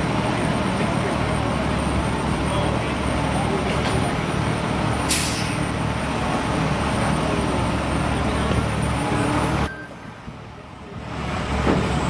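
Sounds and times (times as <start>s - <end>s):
street noise: 0.0s - 12.0s
vehicle engine rumble: 0.0s - 12.0s
brief hiss: 5.1s - 5.6s.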